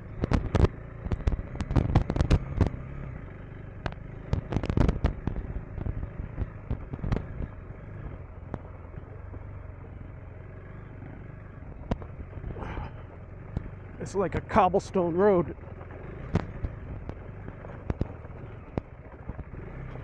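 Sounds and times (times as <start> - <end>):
motorcycle engine running: 0.0 - 20.0
rocks knocking under wheels: 3.8 - 7.6, 15.6 - 20.0.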